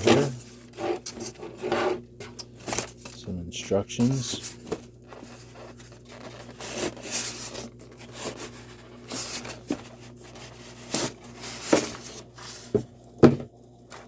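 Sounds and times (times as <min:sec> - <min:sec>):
packaging rustling: 0:00.0 - 0:13.0
steady low hum: 0:00.0 - 0:14.0.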